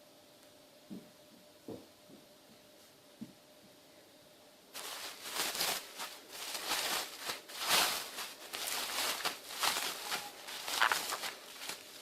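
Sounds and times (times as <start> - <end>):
packaging crinkling and rustling: 4.8 - 12.0.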